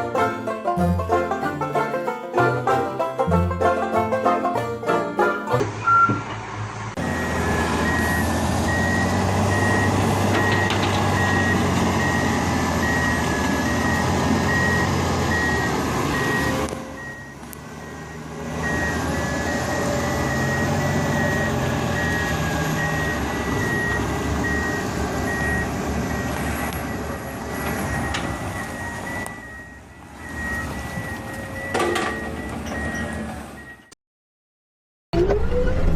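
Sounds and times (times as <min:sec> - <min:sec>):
heavy machine engine rumble: 0:05.3 - 0:33.9
reversing alarm beeping: 0:05.6 - 0:06.2, 0:07.0 - 0:33.9.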